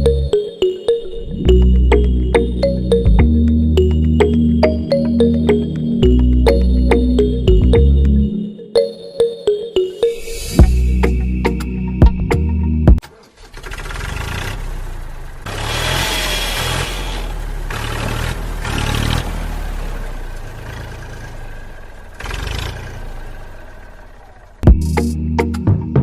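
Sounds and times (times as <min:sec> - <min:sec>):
small engine revving: 0:13.0 - 0:24.7.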